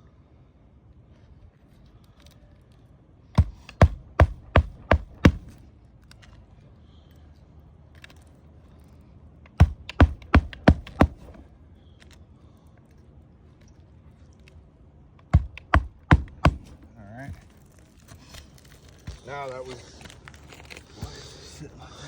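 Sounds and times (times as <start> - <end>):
hammer driving nails into shingles: 3.4 - 5.6, 9.5 - 11.4, 15.2 - 17.7.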